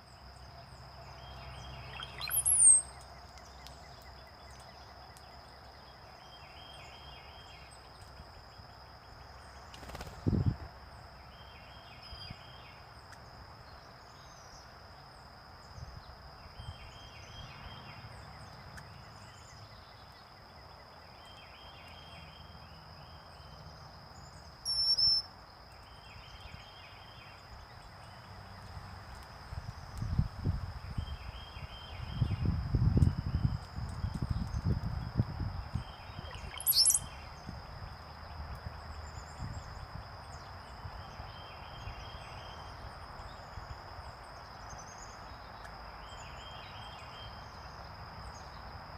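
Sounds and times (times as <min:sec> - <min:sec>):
birds chirping: 0:01.2 - 0:04.6, 0:24.3 - 0:25.2, 0:35.8 - 0:37.3
loud clear bird call: 0:01.7 - 0:02.9, 0:36.2 - 0:37.2.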